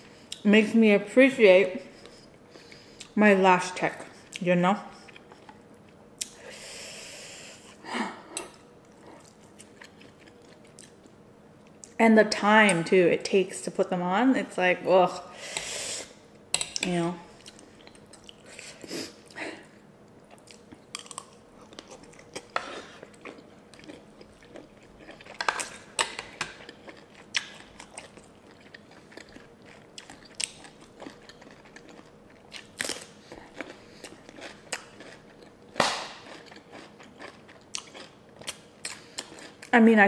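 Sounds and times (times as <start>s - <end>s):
crisp chewing crunches: 20.3s - 39.7s.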